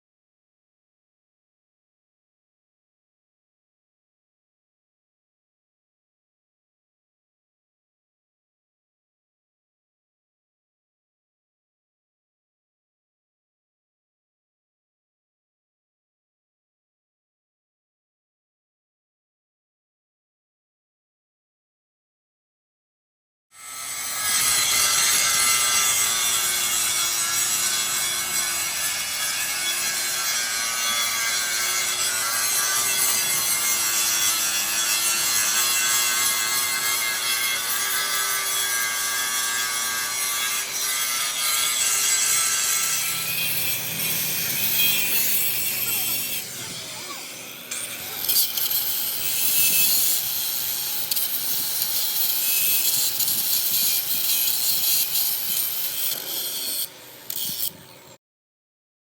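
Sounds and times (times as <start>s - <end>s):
angle grinder grinding metal: 23.6s - 58.2s.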